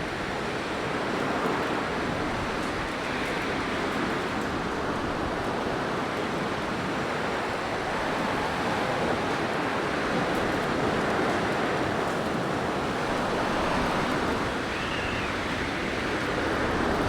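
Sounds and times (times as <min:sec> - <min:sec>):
blizzard wind rushing: 0:07.3 - 0:17.0.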